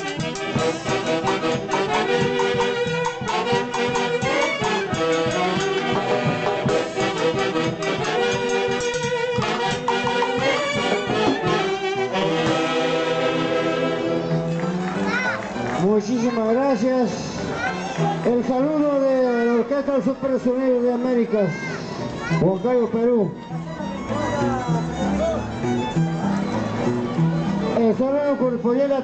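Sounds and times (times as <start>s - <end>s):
brass band playing over a beat: 0.0s - 18.9s.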